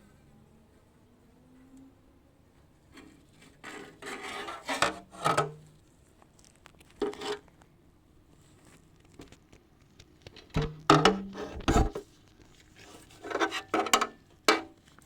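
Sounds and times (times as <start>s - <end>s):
metal scraping: 3.0s - 5.7s, 10.6s - 12.0s, 12.8s - 14.7s
metallic clanks: 10.6s - 11.4s.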